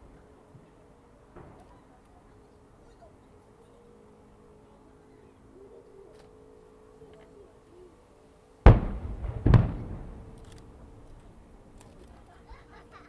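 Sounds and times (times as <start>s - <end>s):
firework shells bursting: 8.7s - 12.3s.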